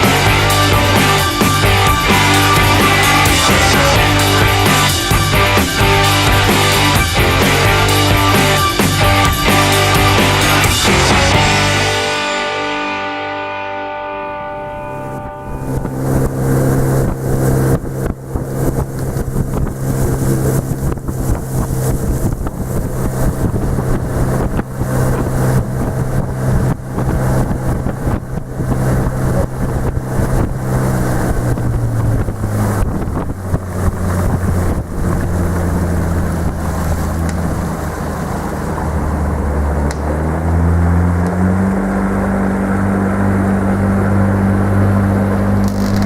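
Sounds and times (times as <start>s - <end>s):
motorboat engine running: 0.0s - 46.0s
wind buffeting microphone: 15.0s - 46.0s.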